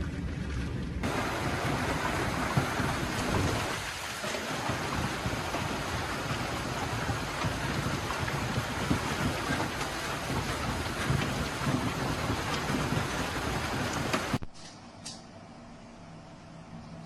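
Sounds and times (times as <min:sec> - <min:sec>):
heavy rain falling: 0:01.0 - 0:14.4.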